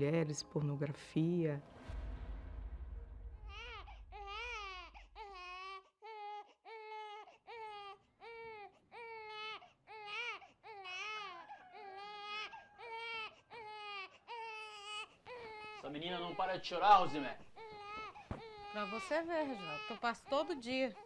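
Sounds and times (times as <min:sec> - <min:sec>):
low hum: 0:00.0 - 0:05.6
baby crying: 0:03.4 - 0:21.0.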